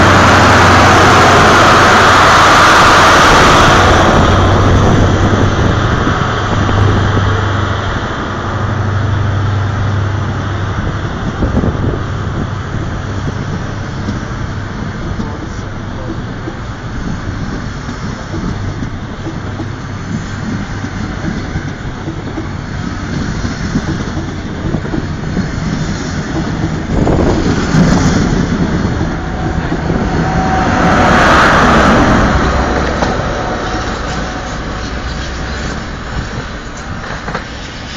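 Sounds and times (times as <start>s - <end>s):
train rushing past: 0.0s - 37.9s
train wheels clattering on rails: 10.4s - 37.9s.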